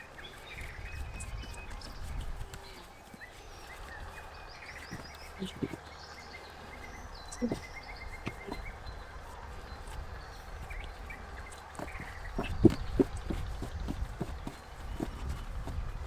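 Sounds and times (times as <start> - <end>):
small birds chirping: 0.0 - 16.0
soft knocks: 7.3 - 8.9, 11.8 - 16.0.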